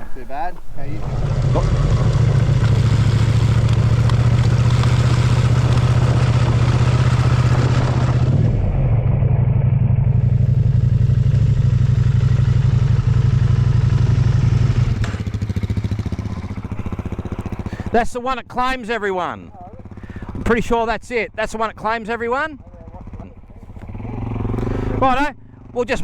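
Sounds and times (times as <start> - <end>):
motorcycle engine running: 0.0 - 26.0
wind: 0.0 - 26.0.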